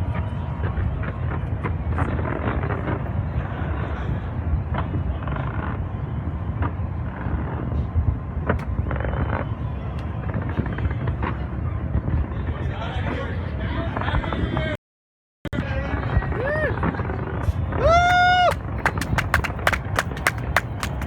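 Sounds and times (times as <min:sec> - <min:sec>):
crowd din: 0:15.6 - 0:21.0.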